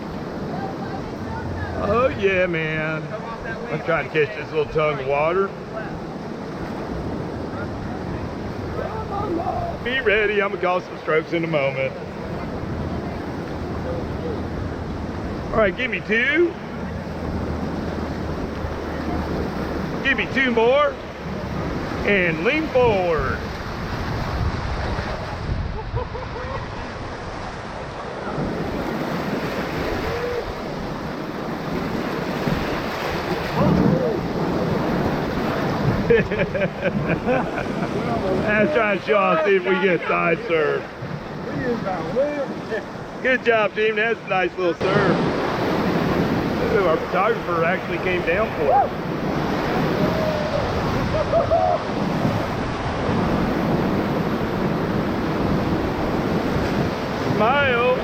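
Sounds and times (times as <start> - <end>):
whitewater rushing: 0.0 - 58.0
wind on microphone: 16.6 - 39.6, 44.8 - 58.0.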